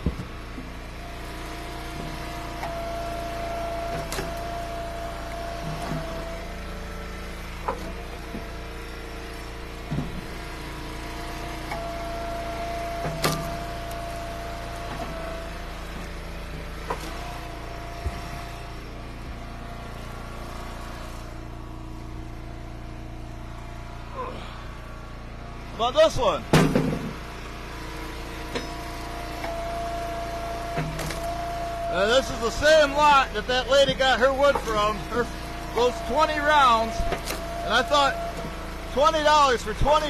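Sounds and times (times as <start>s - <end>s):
log splitter engine running: 0.0s - 40.0s.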